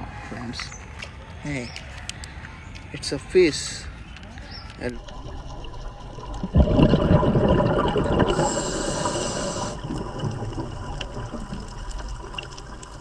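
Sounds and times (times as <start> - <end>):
water churning and sloshing: 4.6 - 13.0.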